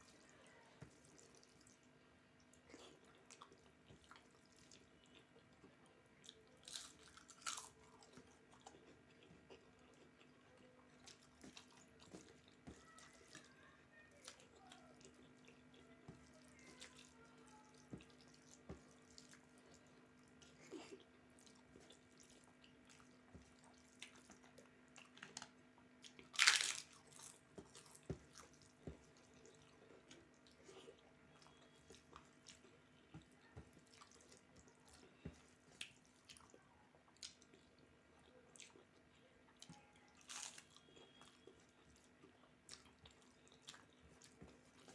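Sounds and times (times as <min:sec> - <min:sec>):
wet chewing smacks: 0:00.1 - 0:13.5.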